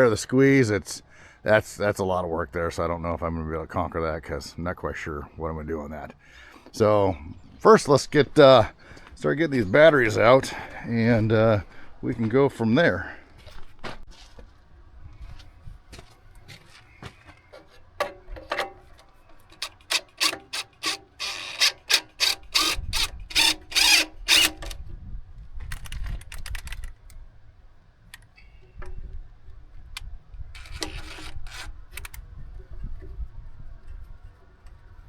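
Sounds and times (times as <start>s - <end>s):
ratchet wrench clicking: 19.5s - 24.8s.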